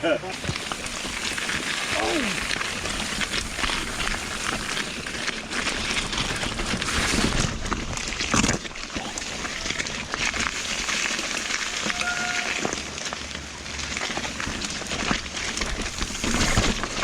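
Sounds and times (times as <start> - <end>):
tyres hissing through water: 0.0 - 7.1, 8.2 - 17.0
bike clattering over rocks: 0.3 - 17.0
brief squeak: 11.9 - 12.6.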